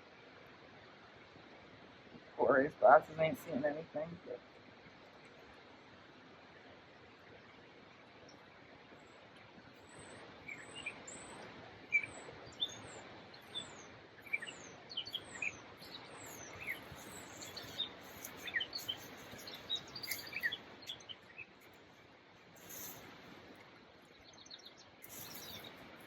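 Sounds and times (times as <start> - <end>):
faint outdoor hiss: 0.0 - 26.0
birds chirping and calling: 10.5 - 21.4.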